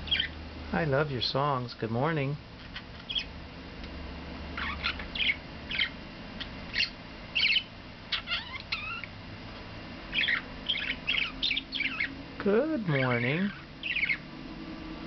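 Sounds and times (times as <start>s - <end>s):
budgerigar chattering and warbling: 0.1s - 0.4s, 2.7s - 3.3s, 4.6s - 9.1s, 10.1s - 12.2s, 12.9s - 14.2s.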